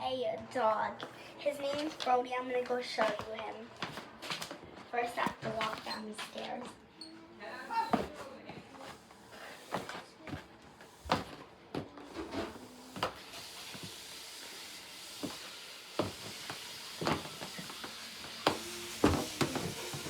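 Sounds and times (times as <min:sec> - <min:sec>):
footsteps going down stairs: 0:08.8 - 0:14.2, 0:15.0 - 0:20.0
steady hiss: 0:12.6 - 0:20.0.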